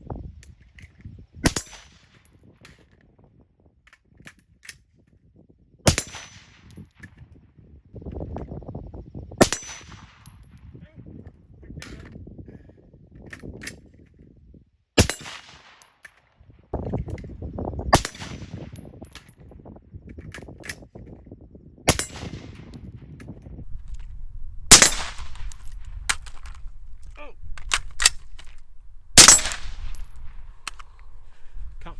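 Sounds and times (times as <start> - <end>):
suppressed rifle shots: 24.7 - 26.9, 29.2 - 31.2.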